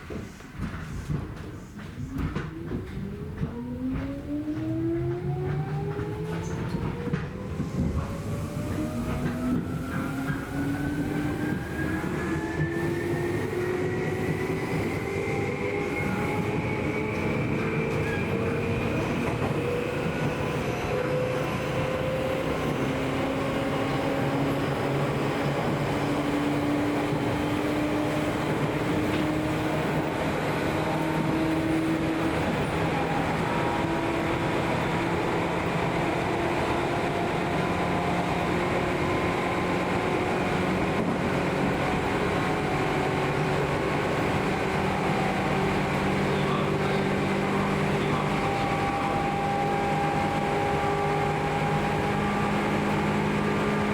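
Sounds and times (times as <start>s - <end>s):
wheels rumbling on rail: 0.0s - 53.9s.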